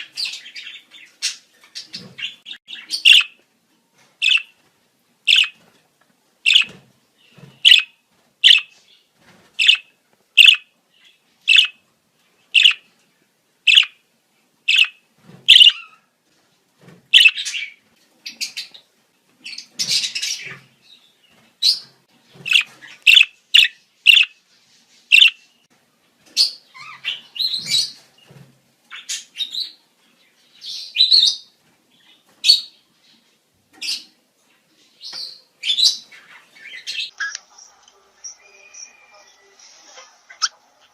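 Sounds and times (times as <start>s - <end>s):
budgerigars chirping: 0.1s - 3.4s, 4.2s - 4.5s, 5.3s - 5.6s, 6.5s - 6.8s, 7.6s - 8.8s, 9.6s - 10.7s, 11.5s - 11.8s, 12.6s - 12.8s, 13.7s - 14.0s, 14.7s - 16.0s, 17.1s - 18.8s, 22.4s - 24.4s, 25.1s - 25.4s.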